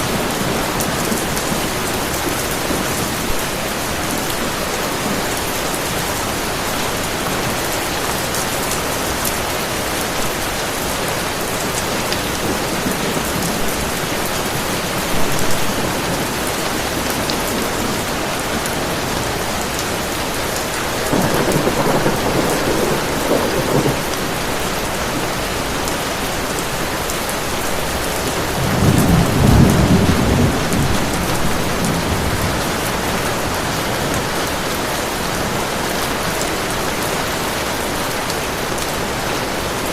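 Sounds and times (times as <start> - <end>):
heavy rain falling: 0.0 - 39.9
low thunder rumbles: 20.6 - 26.4, 28.4 - 35.4.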